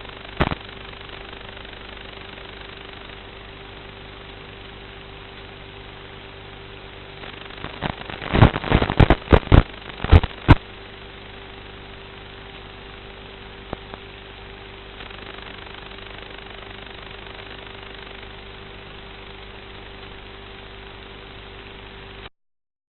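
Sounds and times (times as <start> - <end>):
quadcopter motors humming: 15.0 - 19.4.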